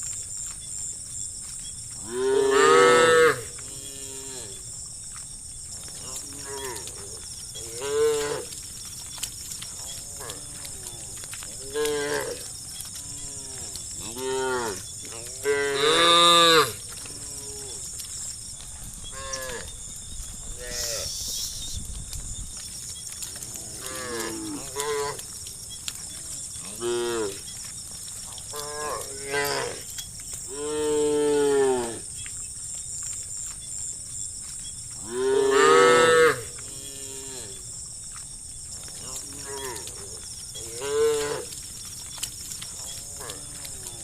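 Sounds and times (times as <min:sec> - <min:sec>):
cattle mooing: 0:02.0 - 0:04.6.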